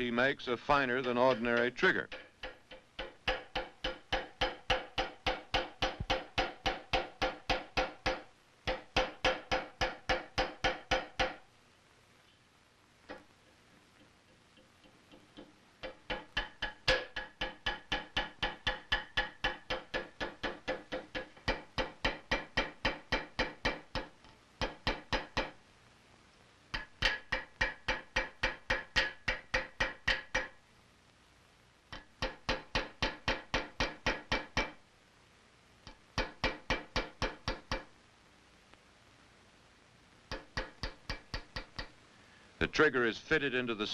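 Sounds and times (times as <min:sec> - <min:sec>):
hammer ringing on metal: 0:00.7 - 0:11.4, 0:15.8 - 0:25.6, 0:32.0 - 0:34.8, 0:36.2 - 0:37.9.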